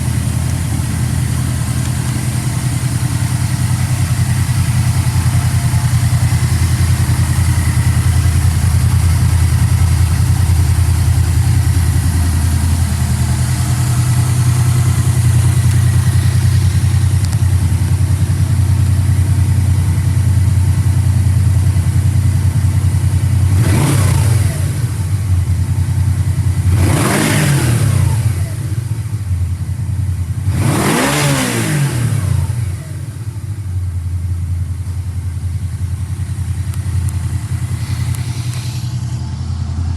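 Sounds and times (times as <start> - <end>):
motorcycle engine revving: 0.0 - 18.8, 23.2 - 25.7, 26.3 - 29.1, 30.4 - 33.5, 35.9 - 39.9
motorcycle engine idling: 0.0 - 39.9.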